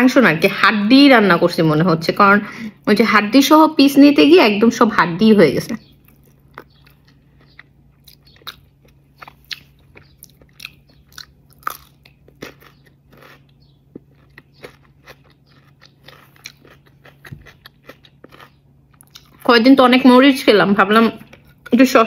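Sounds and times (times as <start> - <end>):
crisp crunches of cucumber bites: 5.9 - 19.5
person chewing food: 6.0 - 19.5, 21.2 - 21.7.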